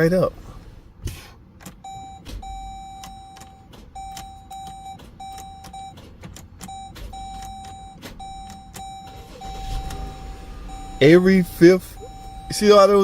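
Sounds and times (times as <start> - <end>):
sharp clicks: 1.6 - 10.2
dashboard warning chime beeping: 1.7 - 13.0.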